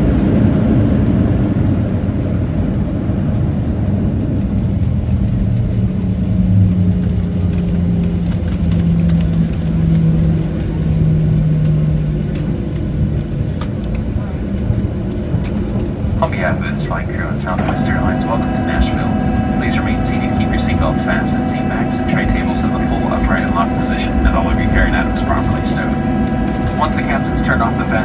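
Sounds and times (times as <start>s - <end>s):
airplane cabin rumble: 0.0s - 28.0s
low hum: 15.8s - 28.0s.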